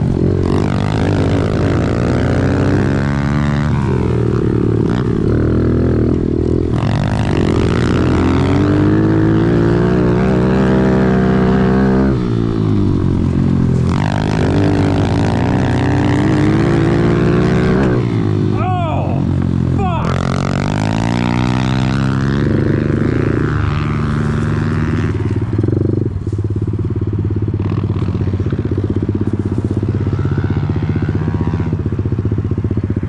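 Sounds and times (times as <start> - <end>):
off-road vehicle engine revving: 0.0 - 25.7.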